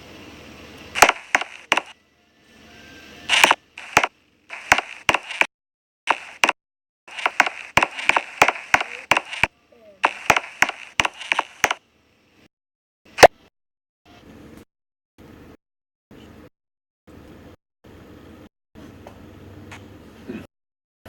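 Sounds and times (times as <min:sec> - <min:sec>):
wood cracking and splintering: 0:07.1 - 0:11.8.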